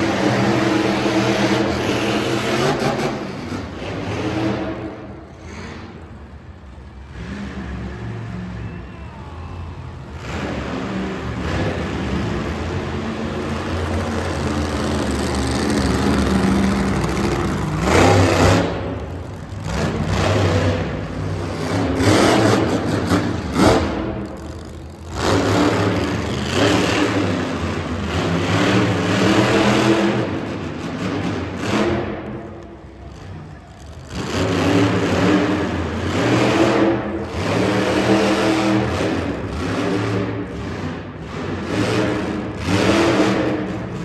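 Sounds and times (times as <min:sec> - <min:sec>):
monster truck engine revving: 0:00.0 - 0:44.0.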